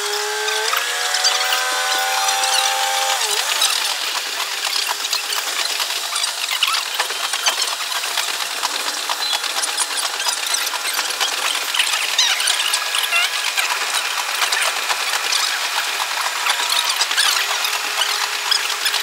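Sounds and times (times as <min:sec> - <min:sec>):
fast clatter of wheels on rails: 0:00.0 - 0:19.0
sped-up railcar engine tones: 0:00.0 - 0:19.0.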